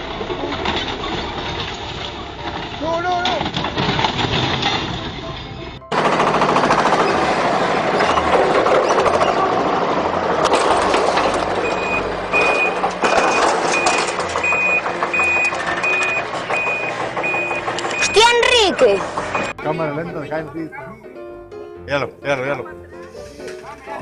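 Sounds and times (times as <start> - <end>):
heavy truck engine running: 0.0 - 20.2
reversing alarm beeping: 11.6 - 19.7.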